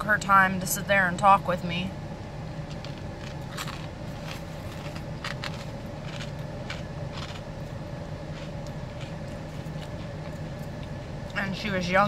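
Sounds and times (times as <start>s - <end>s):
steady low hum: 0.0s - 12.0s
person chewing food: 2.6s - 11.4s
crisp crunches: 2.7s - 7.5s, 8.3s - 10.5s.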